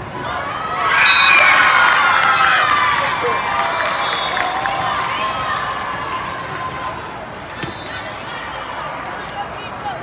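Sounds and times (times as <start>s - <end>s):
crowd cheering and shouting: 0.2s - 7.2s.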